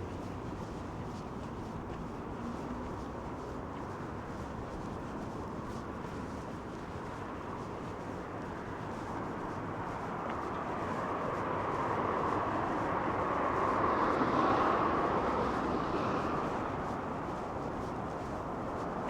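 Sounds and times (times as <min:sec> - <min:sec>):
vehicle passing by: 0:10.8 - 0:19.0.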